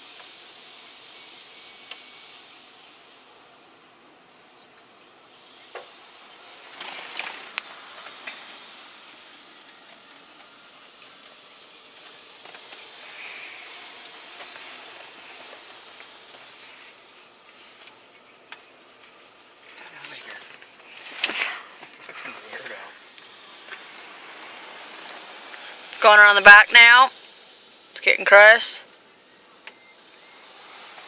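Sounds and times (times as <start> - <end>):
water jets spraying on car: 5.4 - 28.6.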